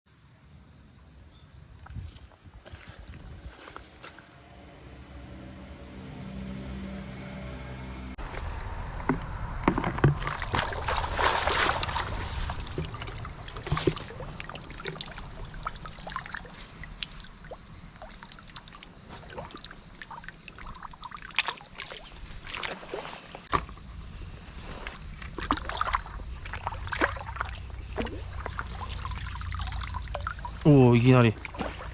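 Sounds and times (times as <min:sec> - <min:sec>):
stream water splashing: 0:09.0 - 0:31.9
stones knocking and clattering: 0:09.1 - 0:14.1.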